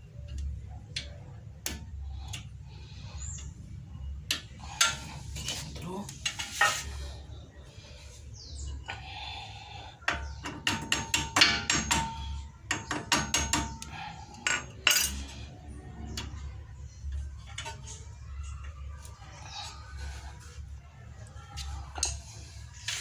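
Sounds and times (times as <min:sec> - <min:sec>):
metal tools tapping and clinking: 0:10.1 - 0:18.8.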